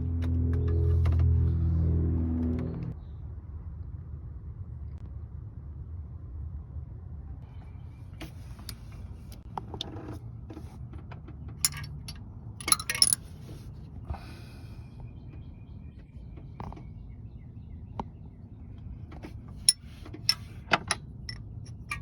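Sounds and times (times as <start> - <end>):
metallic clinks and jingles: 11.6 - 12.0, 12.6 - 13.2.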